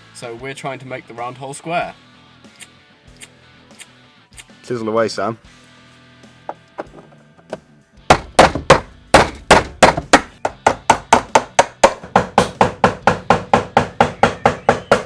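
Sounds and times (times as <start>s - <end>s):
hammer striking a chisel: 8.1s - 15.0s.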